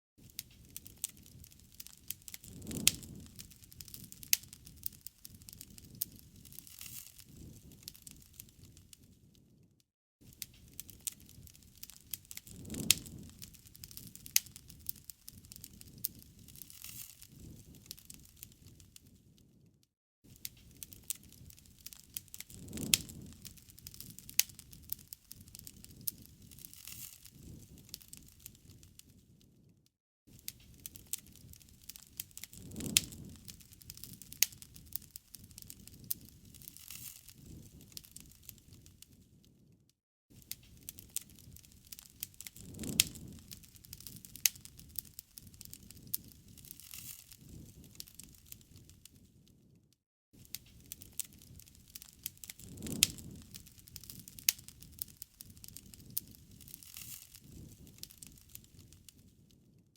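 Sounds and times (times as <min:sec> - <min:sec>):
campfire crackling and popping: 0:00.2 - 0:09.6, 0:10.2 - 0:19.7, 0:20.3 - 0:29.7, 0:30.3 - 0:39.7, 0:40.3 - 0:49.7, 0:50.4 - 0:59.8
low rush of flame: 0:00.2 - 0:19.7, 0:20.3 - 0:29.6, 0:30.3 - 0:39.4, 0:40.3 - 0:49.3, 0:50.4 - 0:59.7.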